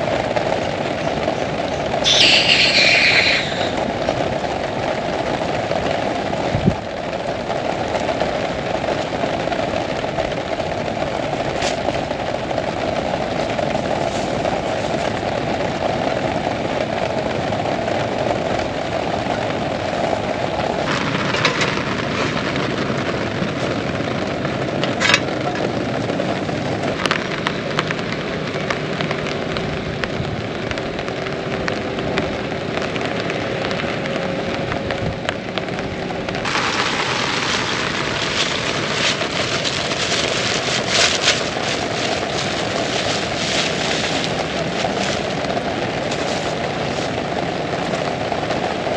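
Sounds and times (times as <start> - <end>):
heavy rain: 0.0 - 48.9.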